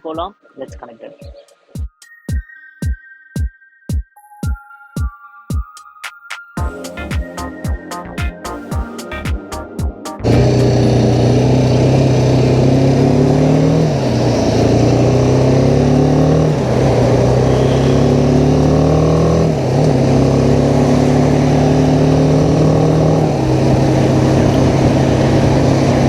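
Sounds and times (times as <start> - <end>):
motorcycle engine accelerating: 9.1 - 26.0.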